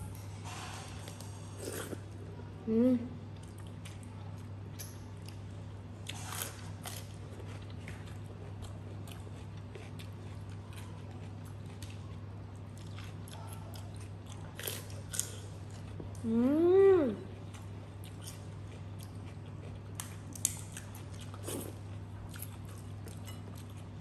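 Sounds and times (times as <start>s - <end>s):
steady low hum: 0.0s - 24.0s
close chewing and biting: 6.1s - 16.2s.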